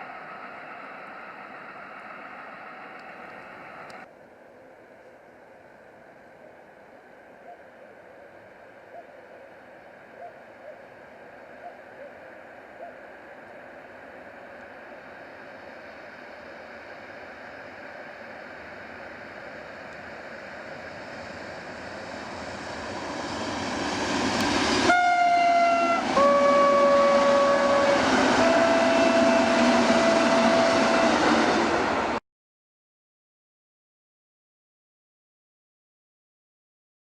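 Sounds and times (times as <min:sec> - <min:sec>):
passenger train running: 0:00.0 - 0:32.2
train horn blasts: 0:24.7 - 0:31.7.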